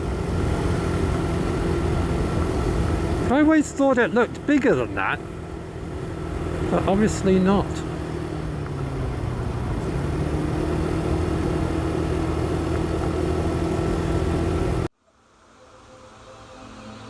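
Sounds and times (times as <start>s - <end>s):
motorcycle engine running: 0.0s - 14.9s
wind and road noise: 0.0s - 14.9s
quiet ambient music: 15.0s - 17.0s.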